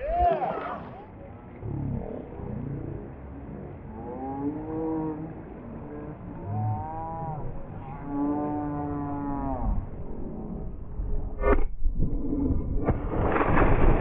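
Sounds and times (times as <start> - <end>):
people whooping and hollering: 0.0 - 1.0.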